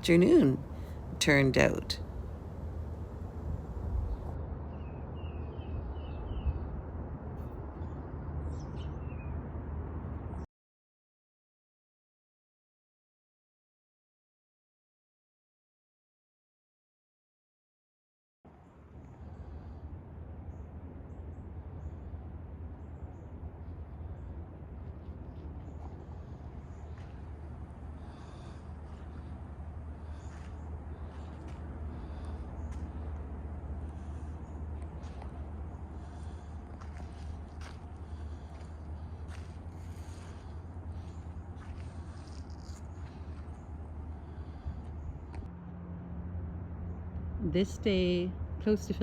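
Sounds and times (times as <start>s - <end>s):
songbirds chirping: 0.0s - 6.6s, 18.5s - 45.5s
steady low rumble: 0.0s - 8.5s, 18.5s - 49.0s.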